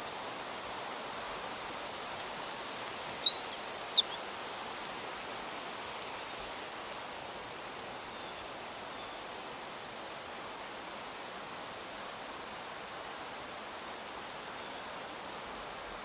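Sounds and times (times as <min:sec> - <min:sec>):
outdoor hiss: 0:00.0 - 0:16.0
songbird chirping and whistling: 0:03.1 - 0:04.4.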